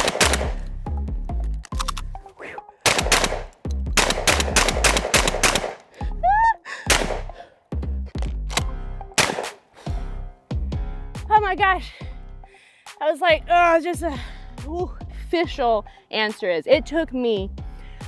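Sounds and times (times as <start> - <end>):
shotgun shots: 0.0 - 0.7, 2.8 - 5.9, 6.9 - 7.4, 9.2 - 9.7
music: 0.0 - 18.0.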